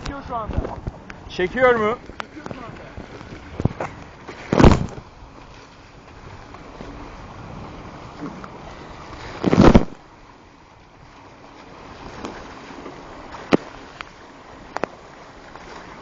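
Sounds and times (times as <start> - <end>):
loud wind buffet: 0.0 - 5.1, 6.2 - 10.0
wind noise: 0.0 - 10.0
rushing water: 0.0 - 16.0.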